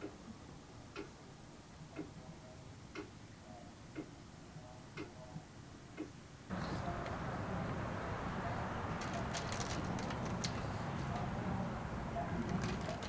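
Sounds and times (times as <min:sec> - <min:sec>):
clock ticking: 0:02.9 - 0:03.1.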